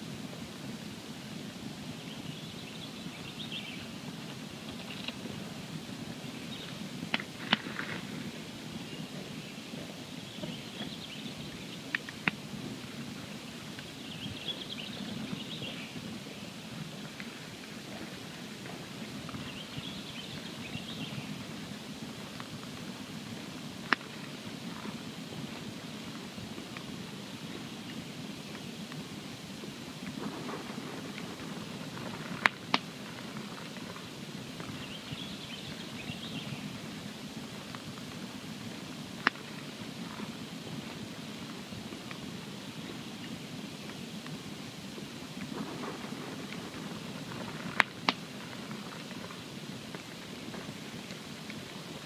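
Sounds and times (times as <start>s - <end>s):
campfire burning: 0.0s - 52.0s
fire crackling pops: 0.0s - 52.0s
loud pop of fire: 30.0s - 33.9s, 45.4s - 49.3s.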